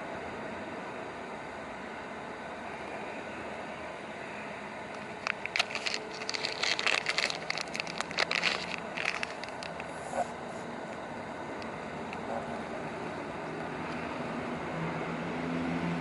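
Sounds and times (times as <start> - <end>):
rustling and crackling: 5.0 - 10.7.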